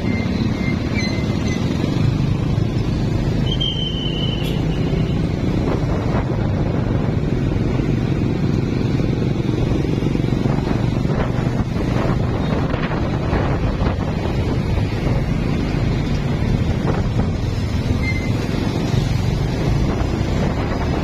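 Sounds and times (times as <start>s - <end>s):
wind rumble on microphone: 4.8s - 21.0s.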